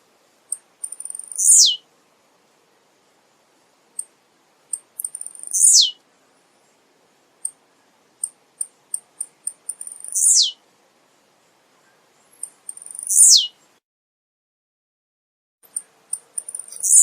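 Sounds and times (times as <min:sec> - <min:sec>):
high bird chip notes: 0:00.5 - 0:01.8, 0:04.7 - 0:05.9, 0:08.2 - 0:10.6, 0:11.9 - 0:13.6, 0:15.7 - 0:17.0
bird singing downward sweeps: 0:01.4 - 0:01.8, 0:05.5 - 0:06.0, 0:10.1 - 0:10.6, 0:12.8 - 0:13.5, 0:16.6 - 0:17.0.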